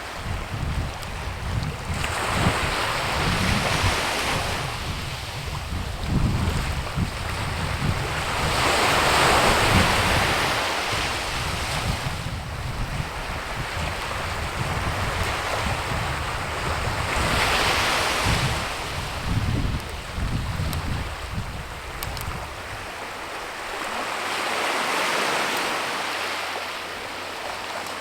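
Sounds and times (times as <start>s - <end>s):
wind gusting on microphone: 0.0s - 25.5s.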